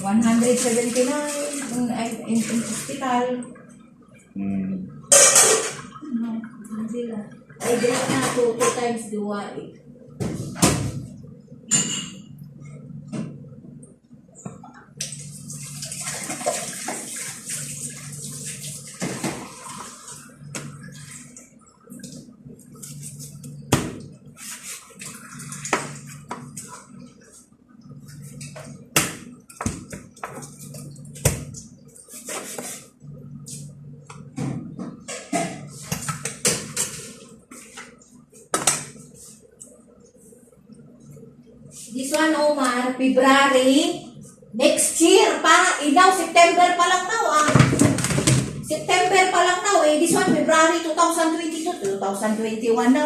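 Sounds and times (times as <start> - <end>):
water running from a tap: 0.0 - 3.6, 15.1 - 21.4.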